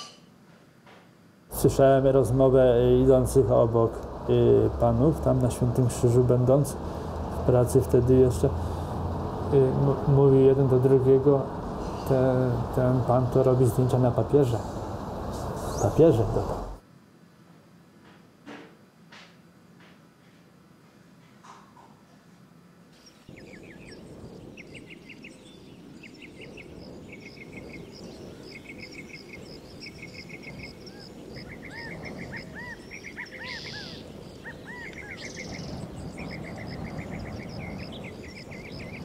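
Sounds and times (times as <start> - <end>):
low background rush: 1.2 - 18.0
small birds singing: 9.2 - 14.5, 15.3 - 16.4, 21.6 - 39.0.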